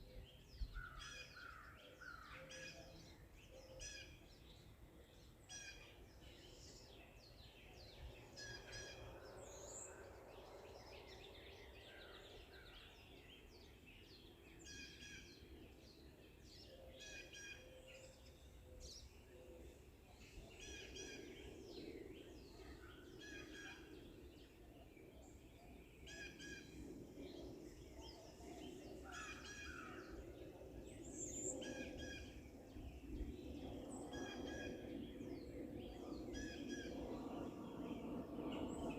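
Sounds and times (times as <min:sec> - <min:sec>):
forest birds singing and chirping: 0:00.0 - 0:38.9.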